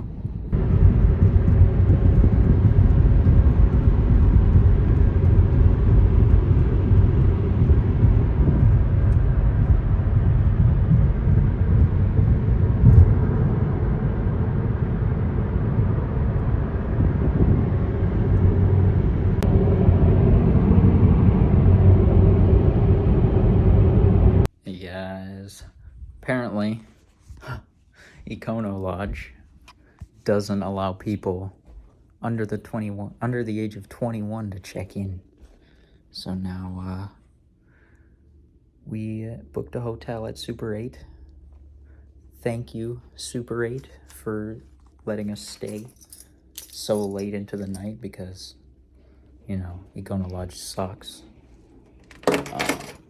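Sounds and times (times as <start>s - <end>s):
road and engine rumble in car: 0.5s - 24.5s.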